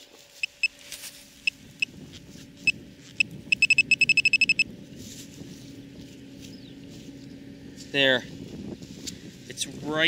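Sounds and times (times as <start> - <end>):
metal detector short beeps: 0.4 - 0.8, 2.6 - 4.7.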